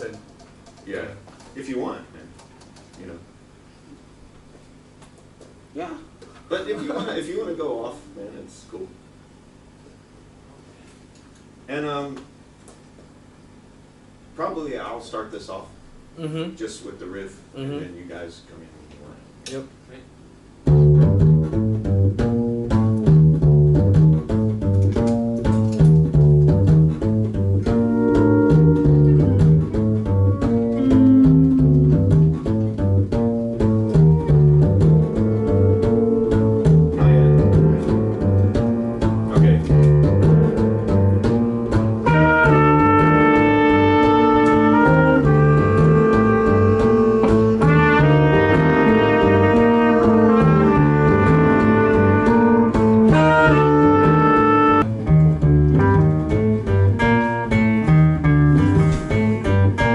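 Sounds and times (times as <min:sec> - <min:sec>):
bass riff: 0:20.6 - 0:59.9
live band playing: 0:22.8 - 0:59.9.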